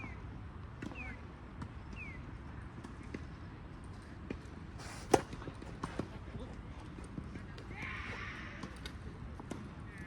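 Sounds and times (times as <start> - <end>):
racket swing swish: 4.8 - 6.2
racket striking tennis ball: 4.9 - 6.0.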